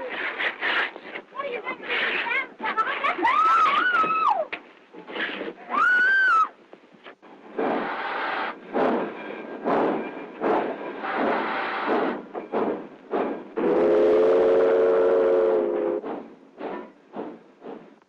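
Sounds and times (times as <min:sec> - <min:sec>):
steam locomotive exhaust chuffing: 0:07.2 - 0:18.0
steam whistle chord: 0:13.6 - 0:16.0.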